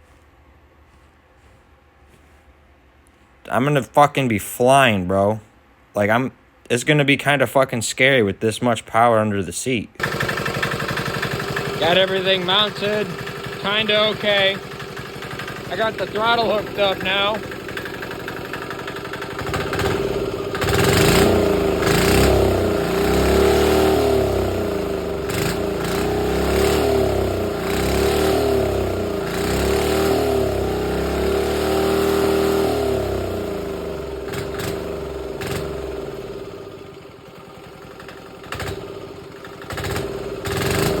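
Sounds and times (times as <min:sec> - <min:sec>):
diesel engine revving: 0:10.0 - 0:37.0, 0:37.6 - 0:41.0.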